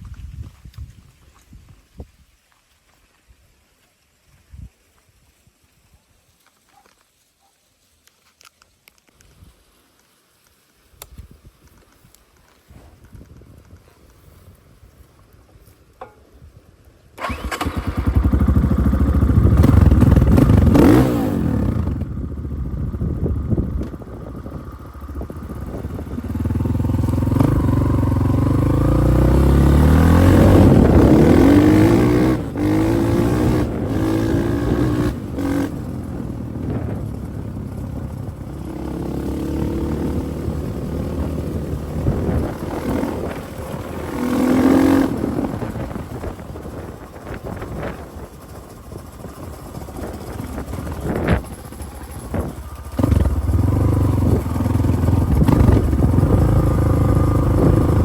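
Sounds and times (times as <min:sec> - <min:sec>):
motorcycle engine revving: 0:17.2 - 0:58.0.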